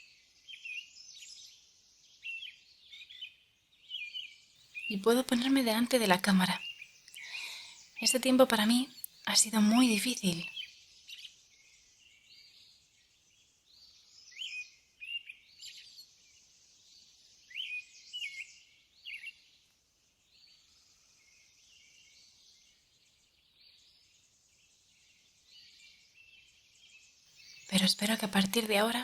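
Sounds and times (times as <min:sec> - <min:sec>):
faint birdsong: 0:00.0 - 0:29.0
soft background hiss: 0:04.7 - 0:10.6, 0:27.4 - 0:29.0.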